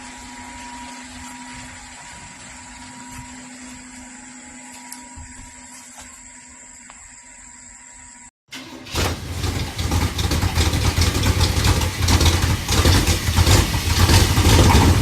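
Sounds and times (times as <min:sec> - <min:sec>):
pickup truck engine revving loudly: 0:08.9 - 0:15.0
deep pulsing exhaust: 0:09.1 - 0:15.0.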